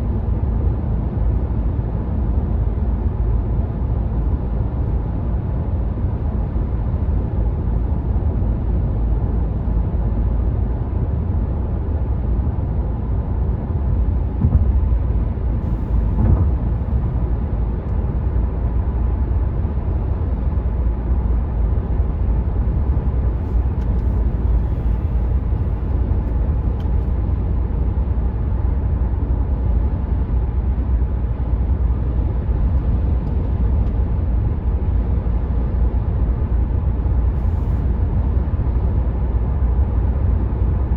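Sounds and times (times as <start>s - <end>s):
road and wind rumble in car cabin: 0.0s - 40.9s
car engine: 13.1s - 22.0s.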